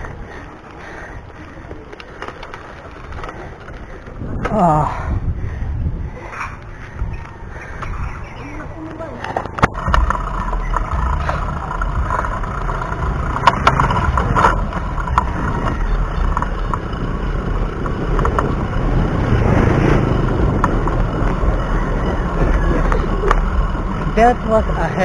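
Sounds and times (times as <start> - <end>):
wind rumble on microphone: 0.0 - 25.0
bike clicks and knocks: 6.6 - 25.0.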